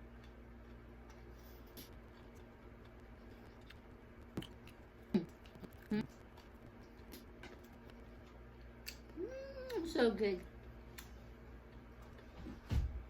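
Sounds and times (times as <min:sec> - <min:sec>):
soft chewing: 0:00.0 - 0:12.4.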